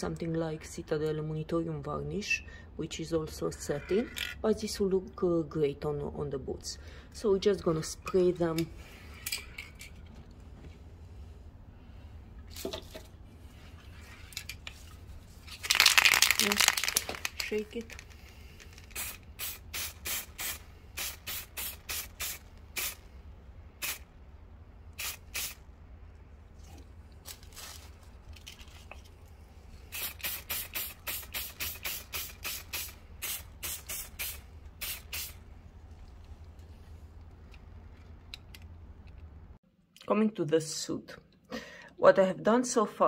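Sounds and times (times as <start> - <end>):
aerosol can spraying: 18.8 - 23.0, 23.8 - 24.1, 25.0 - 25.6, 29.9 - 35.4.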